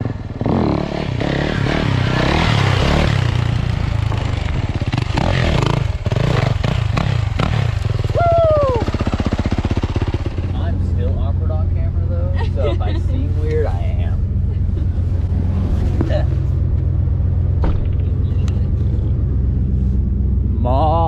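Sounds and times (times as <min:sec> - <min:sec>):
dirt bike engine revving: 0:00.0 - 0:11.5.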